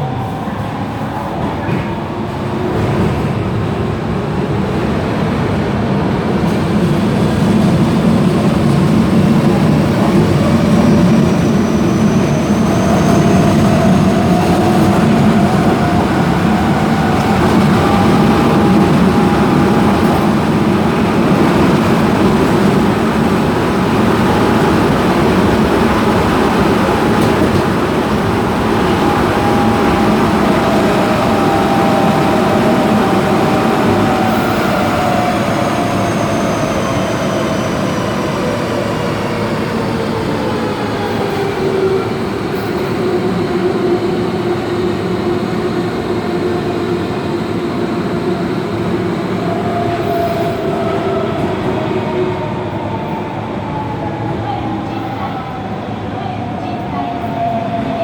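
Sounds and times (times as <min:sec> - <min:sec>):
subway train motors whining: 0:00.0 - 0:58.0
train running gear rumble: 0:00.0 - 0:58.0.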